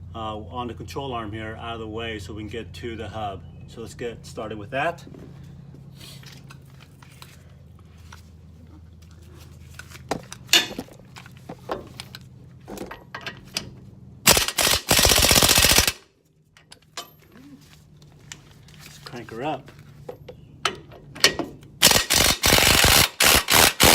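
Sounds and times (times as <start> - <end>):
tools clicking and knocking: 11.6 - 13.8, 20.1 - 22.9
impact wrench hammering: 21.8 - 23.9.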